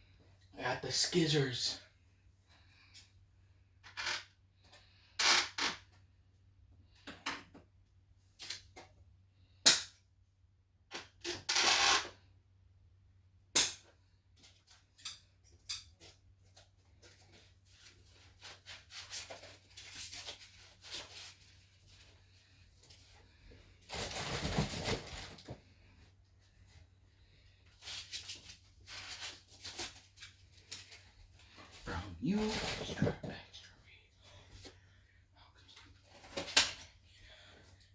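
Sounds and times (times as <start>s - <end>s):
plastic packaging rustling: 23.8s - 25.6s.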